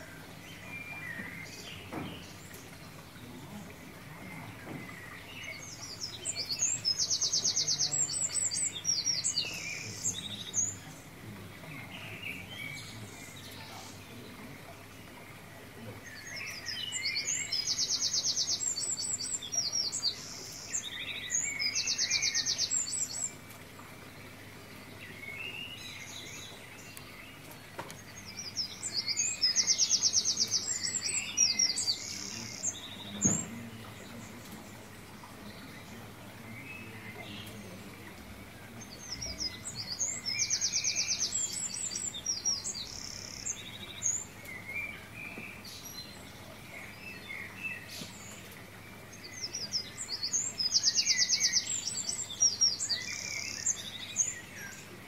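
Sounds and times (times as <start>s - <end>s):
bird trills and chirps: 25.1s - 54.9s.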